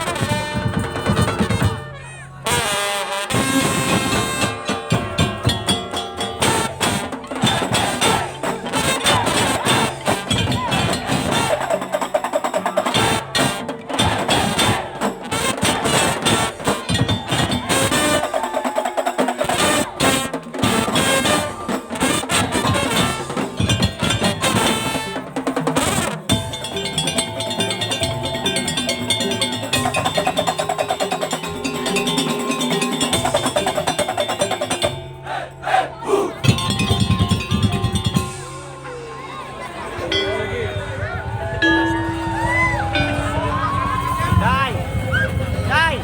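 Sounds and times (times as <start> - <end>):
brass-like melody: 0.0 - 18.6, 19.4 - 46.0
slit drums and drums beating: 0.0 - 46.0
sustained melody line: 39.8 - 46.0.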